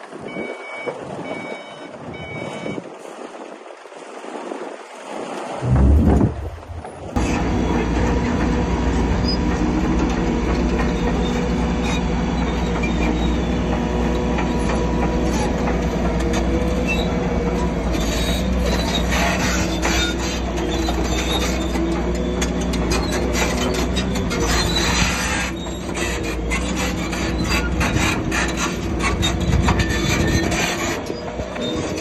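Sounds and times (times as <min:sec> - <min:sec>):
diesel engine running: 0:05.6 - 0:32.0
steel tracks squealing and clanking: 0:06.8 - 0:32.0.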